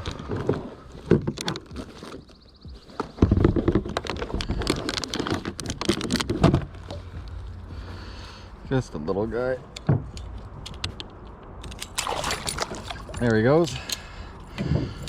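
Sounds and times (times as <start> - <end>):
fish clicking and rattling in kayak: 0.0 - 7.0, 10.8 - 14.1.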